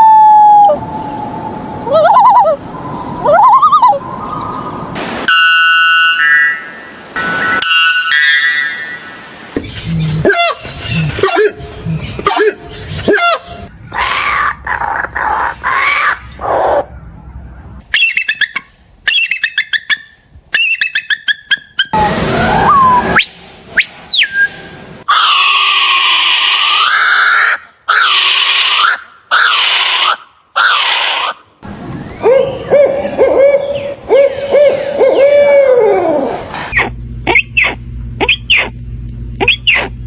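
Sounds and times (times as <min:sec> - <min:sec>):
bird calls: 0:09.6 - 0:22.0, 0:26.9 - 0:38.8, 0:39.4 - 0:40.0.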